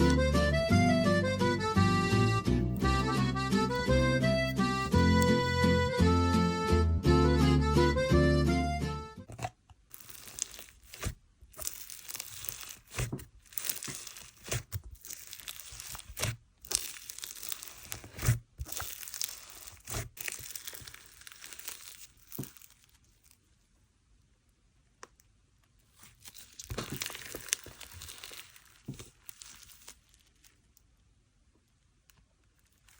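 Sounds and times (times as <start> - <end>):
slime crackling and popping: 9.2 - 23.4, 25.9 - 30.6.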